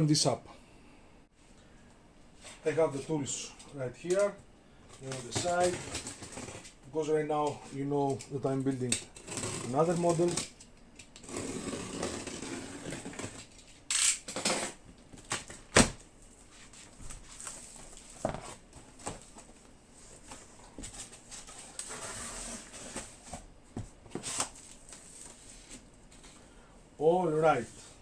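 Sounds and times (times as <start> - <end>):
cardboard rustling and scraping: 5.0 - 6.8, 16.3 - 26.4.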